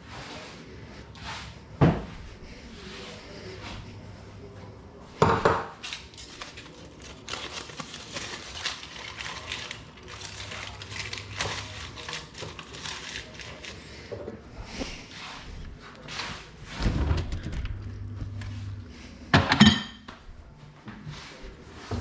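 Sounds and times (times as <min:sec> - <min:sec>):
low hum: 0:16.8 - 0:21.1
dishes and utensils clinking: 0:19.4 - 0:20.1.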